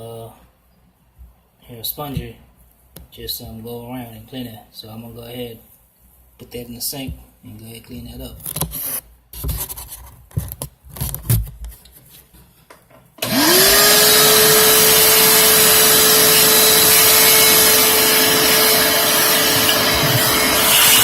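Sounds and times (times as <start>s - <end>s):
shop vac motor whining: 13.2s - 21.0s.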